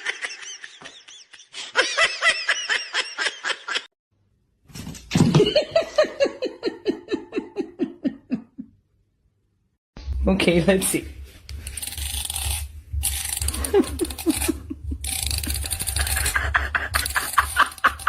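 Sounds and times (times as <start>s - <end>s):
people laughing: 0.0s - 3.9s, 5.4s - 8.7s, 13.5s - 18.0s.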